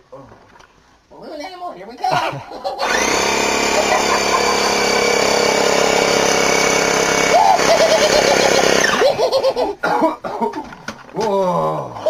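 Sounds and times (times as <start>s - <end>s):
people laughing: 2.1s - 5.2s, 7.3s - 10.8s
electric air pump motor: 2.8s - 9.1s.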